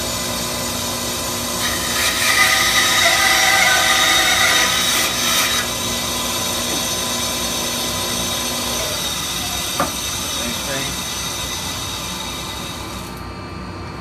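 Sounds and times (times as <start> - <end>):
bandsaw motor hum: 0.0 - 13.3
bandsaw blade cutting wood: 1.6 - 6.1.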